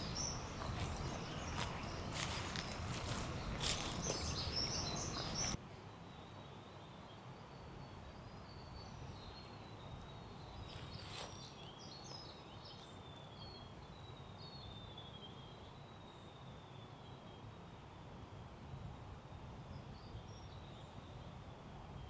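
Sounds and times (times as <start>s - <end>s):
faint bird chirps: 0.0s - 5.6s.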